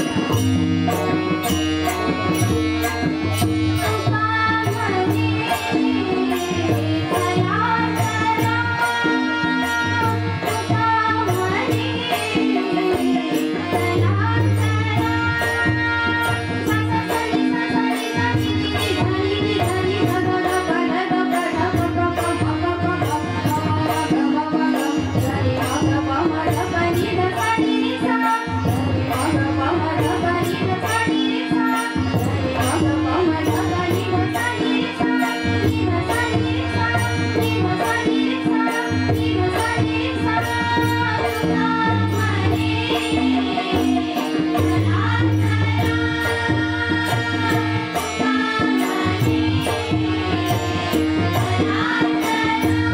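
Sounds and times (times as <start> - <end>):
harmonium drone: 0.0 - 52.9
small hand cymbals: 0.0 - 52.9
tabla: 0.0 - 52.9
group singing devotional song: 29.9 - 52.9.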